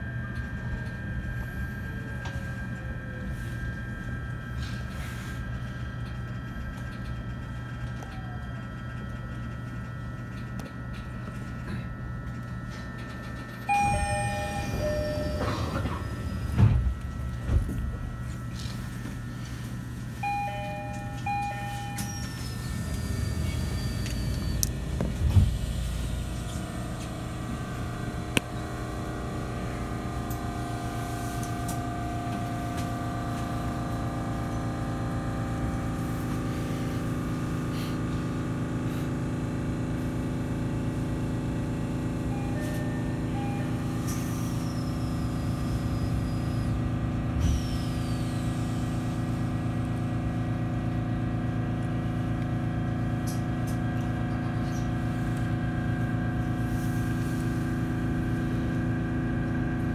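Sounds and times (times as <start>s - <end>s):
low rumble of moving train: 0.0s - 59.9s
train motor hum: 0.0s - 59.9s
two-note door chime: 13.6s - 19.6s, 20.2s - 22.6s.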